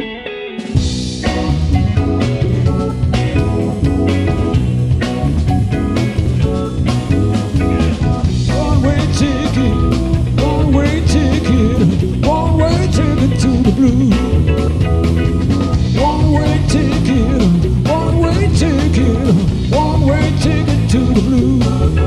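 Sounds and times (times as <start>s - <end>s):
electric guitar solo: 0.0s - 16.0s
blues-rock band playing: 0.0s - 22.0s.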